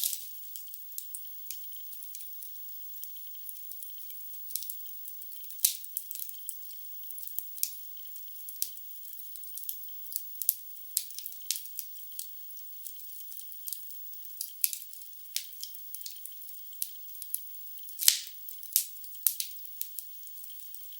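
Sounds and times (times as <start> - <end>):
wood fire crackling and popping: 14.4 - 17.4, 18.0 - 20.0.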